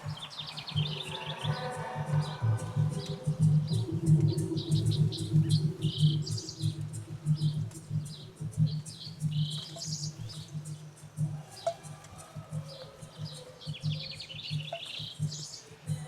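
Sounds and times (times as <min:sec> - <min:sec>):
small birds chirping: 0:00.0 - 0:16.0
low pulsing hum: 0:02.0 - 0:11.3.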